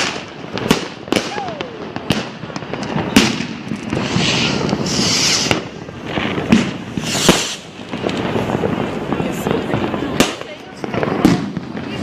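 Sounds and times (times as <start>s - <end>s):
fireworks banging: 0.0s - 12.0s
fireworks crackling and fizzing: 0.0s - 12.0s.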